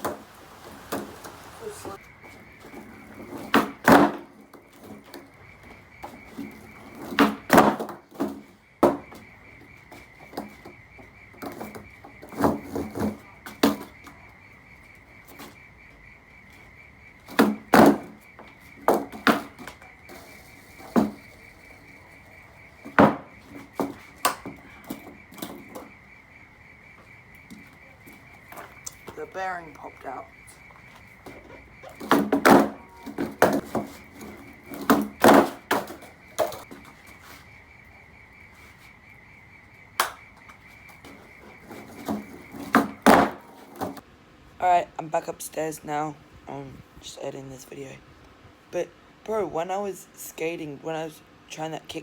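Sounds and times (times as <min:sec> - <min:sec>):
skateboard pops and clacks: 0:03.2 - 0:05.2, 0:06.4 - 0:09.2, 0:17.3 - 0:18.2, 0:18.8 - 0:21.3, 0:22.8 - 0:25.8, 0:31.8 - 0:36.8, 0:40.0 - 0:44.0.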